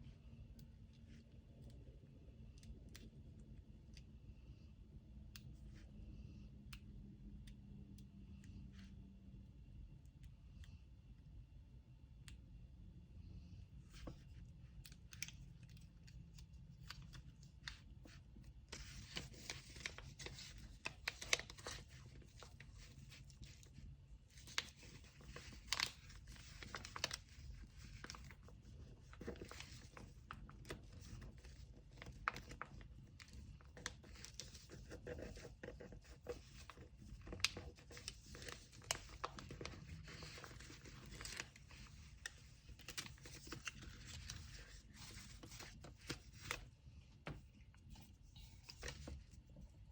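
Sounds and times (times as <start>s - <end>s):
small clicks and taps: 14.0s - 20.5s
paper rustling and tearing: 24.3s - 46.6s.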